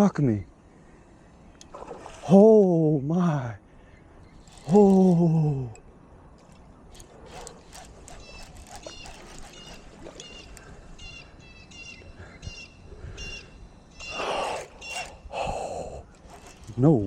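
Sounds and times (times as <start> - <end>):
fishing reel drag clicking: 1.5 - 2.5, 4.3 - 5.8, 6.4 - 12.0, 14.0 - 17.0.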